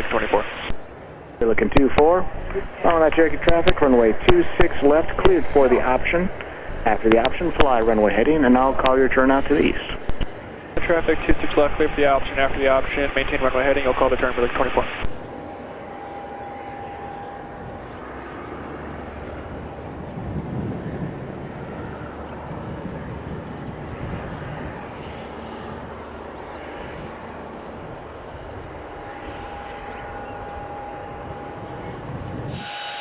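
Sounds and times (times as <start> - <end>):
propeller aircraft engine: 0.0 - 33.0.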